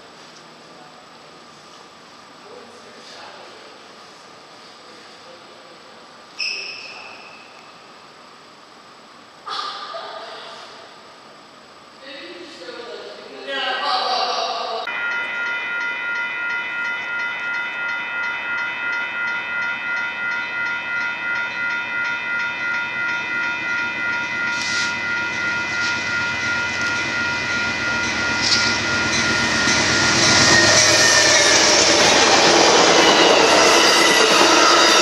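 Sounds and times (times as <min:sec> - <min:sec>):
train on rails approaching: 0:14.8 - 0:35.0
crossing warning bell ringing: 0:14.9 - 0:35.0.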